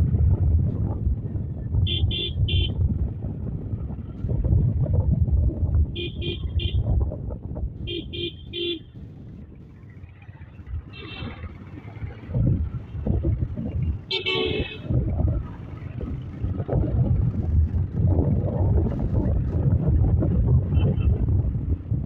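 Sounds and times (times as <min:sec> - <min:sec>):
motorcycle rumbling: 0:00.0 - 0:22.0
wind: 0:00.0 - 0:22.0
vehicle horn beeps: 0:01.9 - 0:02.8, 0:06.0 - 0:06.8, 0:14.1 - 0:14.9.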